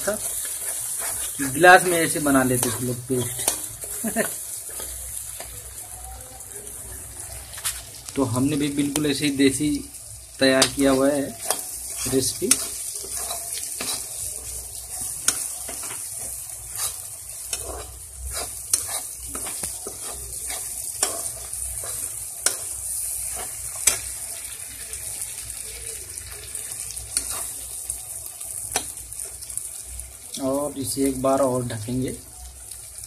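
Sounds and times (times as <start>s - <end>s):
spatula scraping a pan: 0.0s - 5.5s, 10.6s - 24.2s, 26.9s - 27.7s
paste sizzling in oil: 0.0s - 33.0s.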